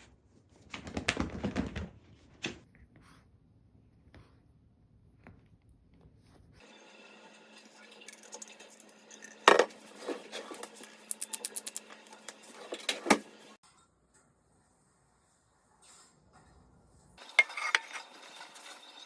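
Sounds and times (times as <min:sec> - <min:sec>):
dishes and cutlery clinking: 0:17.2 - 0:18.8.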